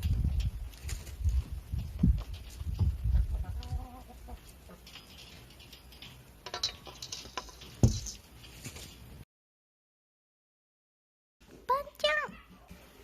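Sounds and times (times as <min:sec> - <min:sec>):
chickens clucking: 0:00.7 - 0:07.6.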